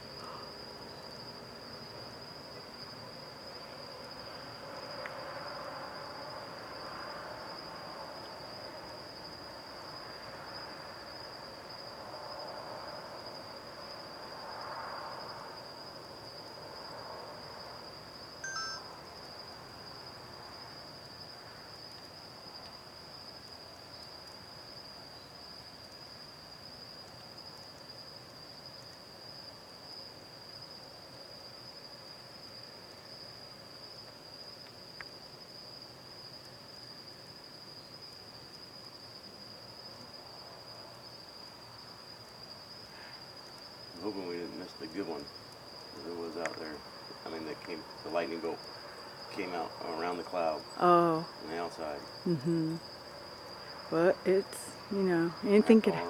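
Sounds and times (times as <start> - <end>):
crickets chirping: 0.0 - 56.0
short bright ping: 18.4 - 18.8
faint ringing tones: 18.4 - 18.9.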